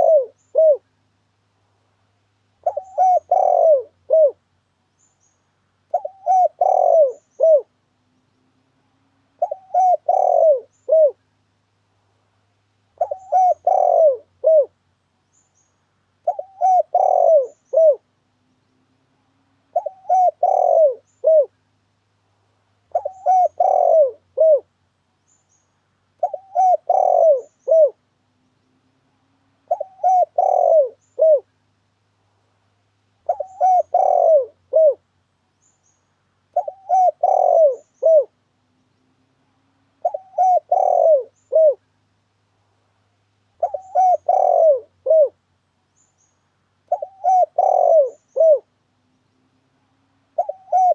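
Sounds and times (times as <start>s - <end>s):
dove cooing: 0.0s - 0.9s, 2.6s - 4.4s, 5.9s - 7.8s, 9.3s - 11.2s, 12.9s - 14.8s, 16.2s - 18.1s, 19.6s - 21.6s, 22.9s - 24.7s, 26.2s - 28.0s, 29.6s - 31.5s, 33.2s - 35.0s, 36.5s - 38.4s, 39.9s - 41.9s, 43.6s - 45.4s, 46.8s - 48.8s, 50.3s - 50.9s.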